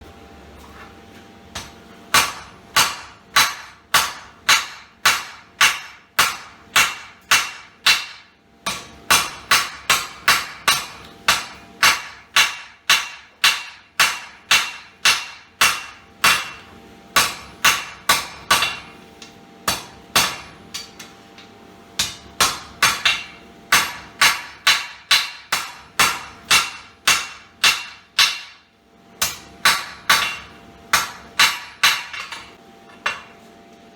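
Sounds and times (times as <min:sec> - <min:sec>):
hammer ringing on anvil: 0:17.2 - 0:19.0, 0:19.7 - 0:28.6.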